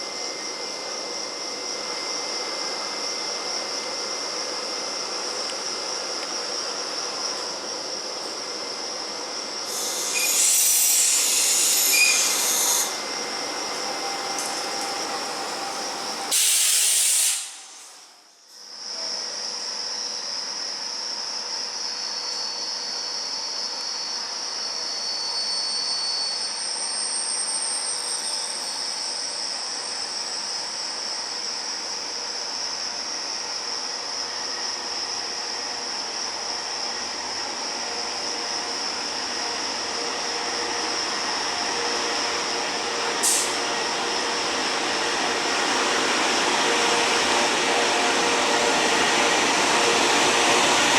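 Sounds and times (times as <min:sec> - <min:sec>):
train rail noise with hiss: 0:00.0 - 0:50.9
wheel squeals: 0:24.6 - 0:29.2.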